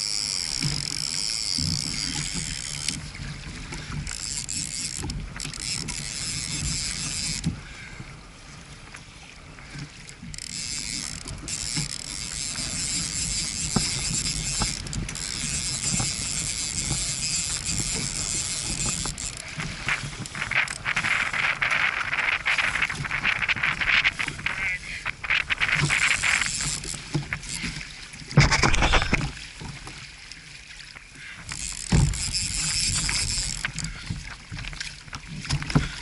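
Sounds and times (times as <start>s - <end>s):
water sloshing around kayak hull: 0.0s - 36.0s
wind on microphone: 10.6s - 29.4s.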